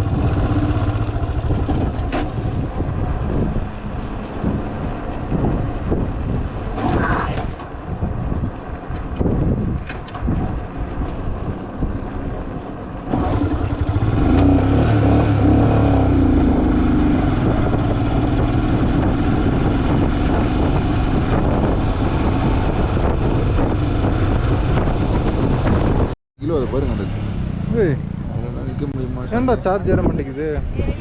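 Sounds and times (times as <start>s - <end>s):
motorcycle engine running: 0.0s - 3.7s, 13.1s - 26.2s.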